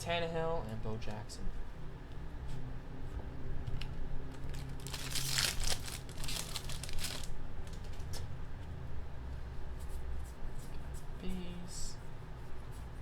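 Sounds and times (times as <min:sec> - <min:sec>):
wrapper crinkling as torn open: 0:04.3 - 0:08.0.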